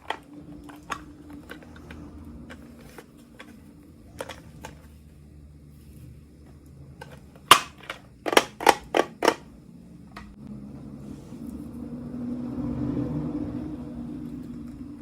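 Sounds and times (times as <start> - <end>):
plastic toys clicking and snapping: 0.0 - 4.9, 7.0 - 9.5.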